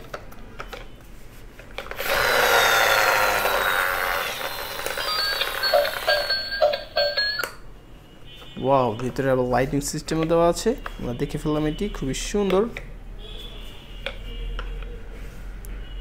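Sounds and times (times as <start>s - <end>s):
short electronic beeps: 5.0s - 7.6s.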